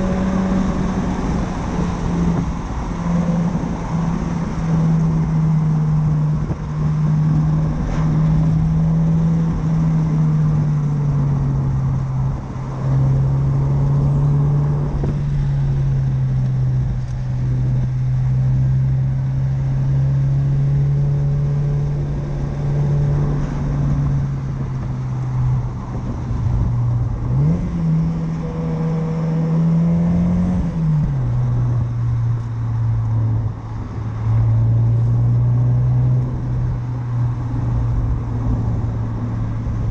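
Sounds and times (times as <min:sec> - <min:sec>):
car engine pulling while driving: 0:00.0 - 0:39.9.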